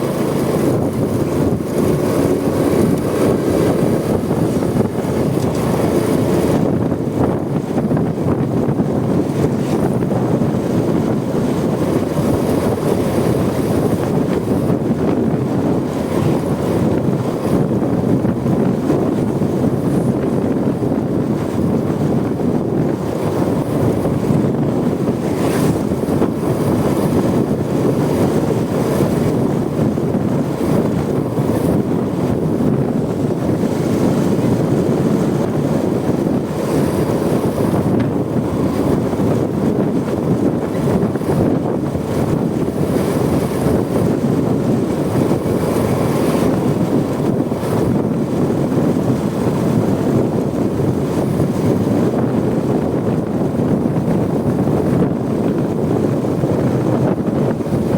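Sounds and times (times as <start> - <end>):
motorcycle engine: 0.0 - 8.8
road noise: 0.0 - 51.5
wind buffeting microphone: 0.0 - 57.9.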